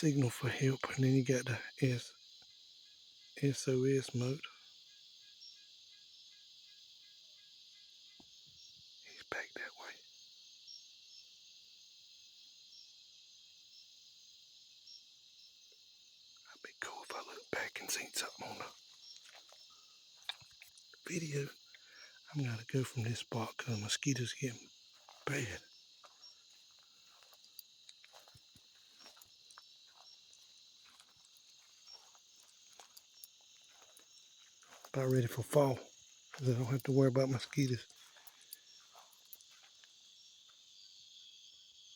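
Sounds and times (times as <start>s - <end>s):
chorus of night insects: 0.0s - 41.9s
short insect chirps: 0.0s - 41.9s
soft ticks and rustles: 17.0s - 21.8s, 23.7s - 40.6s.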